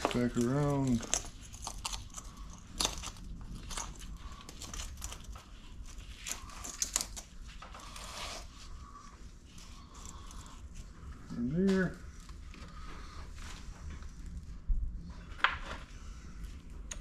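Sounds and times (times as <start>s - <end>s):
tools clicking and scraping: 0.0s - 8.5s.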